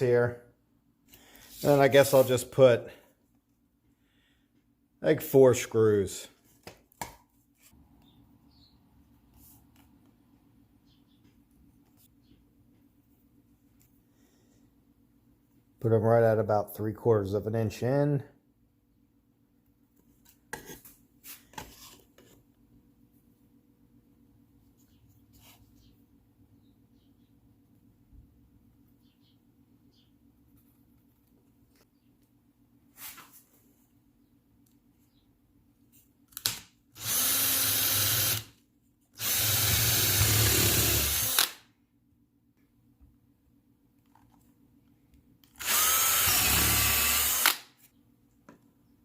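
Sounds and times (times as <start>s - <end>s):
power drill boring into wood: 37.0s - 38.5s, 39.2s - 41.6s, 45.6s - 47.7s.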